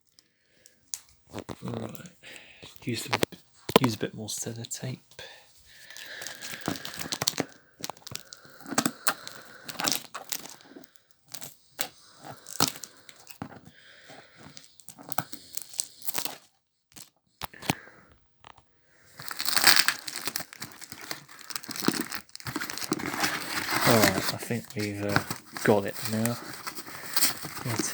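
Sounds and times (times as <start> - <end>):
packaging crinkling: 5.7 - 17.8, 18.4 - 27.9
packaging tearing: 5.8 - 17.8, 19.2 - 27.9.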